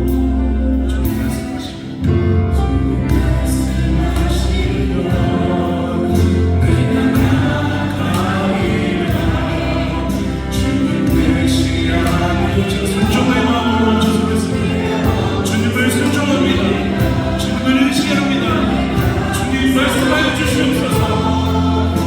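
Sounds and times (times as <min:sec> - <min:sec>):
gospel choir singing: 0:00.0 - 0:22.0
steady bass accompaniment: 0:00.0 - 0:22.0.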